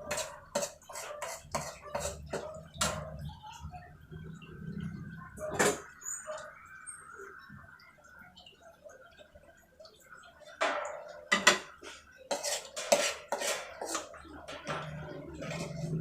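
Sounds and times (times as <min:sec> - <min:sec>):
metal utensils clinking on dishes: 0:00.0 - 0:03.3, 0:05.4 - 0:06.4, 0:10.6 - 0:16.0.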